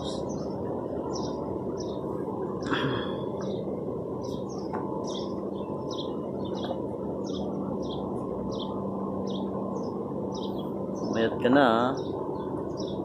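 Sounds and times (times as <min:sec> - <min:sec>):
steady background noise: 0:00.0 - 0:13.0
small bird chirping: 0:04.2 - 0:13.0.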